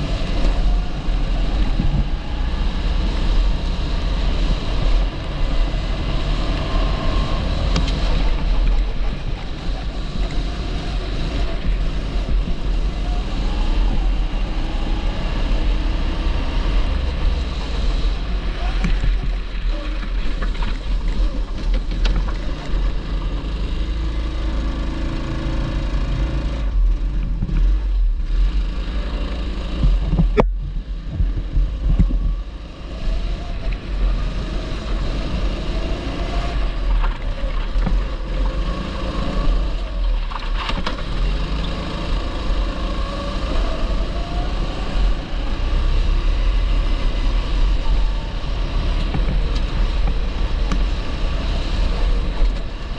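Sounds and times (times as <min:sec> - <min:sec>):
kart engine revving: 0:00.0 - 0:52.9.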